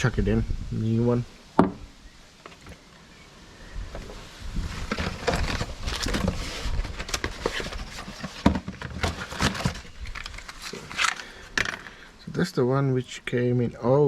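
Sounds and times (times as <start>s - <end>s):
hands handling small parts and packaging: 4.7s - 12.0s.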